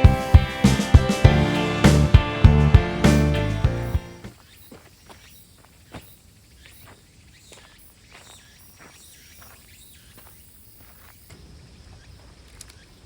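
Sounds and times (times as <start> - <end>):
high insect trill: 4.3 - 13.0.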